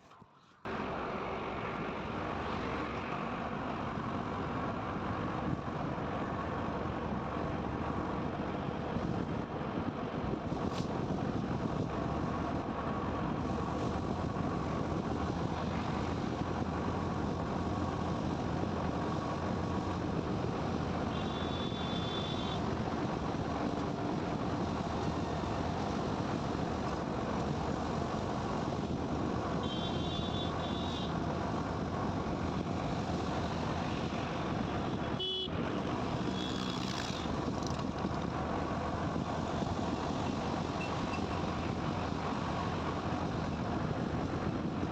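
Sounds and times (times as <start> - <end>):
motorcycle riding noise: 13.4 - 44.9.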